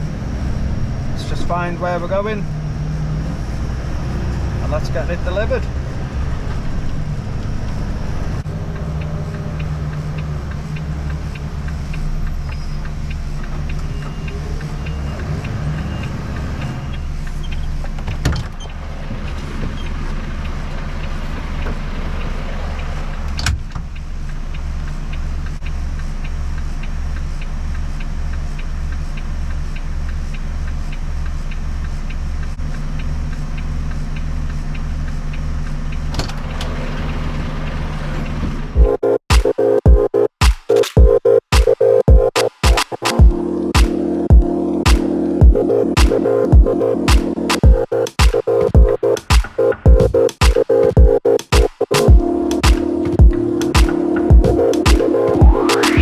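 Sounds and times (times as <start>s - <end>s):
diesel engine droning: 0.0s - 18.0s, 43.2s - 50.4s, 52.0s - 56.0s
sharp clicks: 38.8s - 56.0s.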